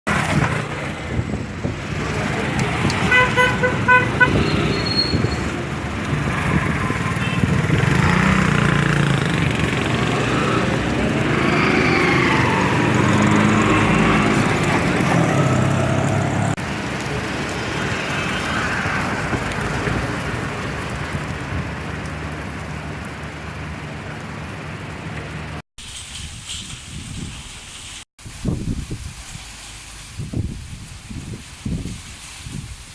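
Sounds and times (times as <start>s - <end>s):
vehicles passing: 0.1s - 25.6s
traffic noise: 0.1s - 32.9s.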